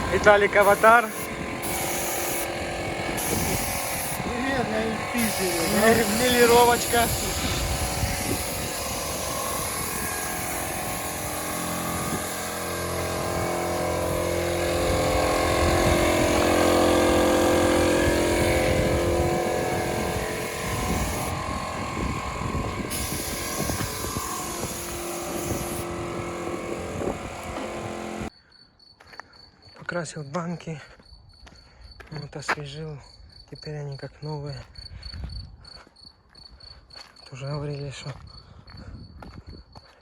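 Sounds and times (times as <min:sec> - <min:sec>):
vehicle engine running: 0:00.0 - 0:28.3.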